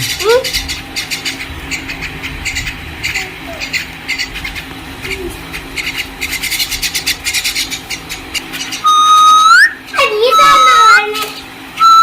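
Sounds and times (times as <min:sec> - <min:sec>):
loud steady whistle: 0:08.8 - 0:11.1, 0:11.8 - 0:12.0.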